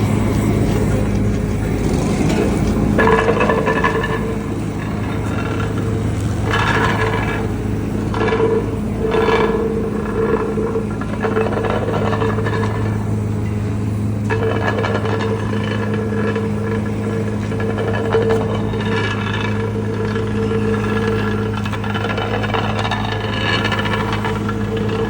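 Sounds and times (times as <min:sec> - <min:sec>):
high mechanical tone: 0:00.0 - 0:10.2
machinery scraping: 0:00.0 - 0:25.0
paving machinery engine hum: 0:00.0 - 0:25.0.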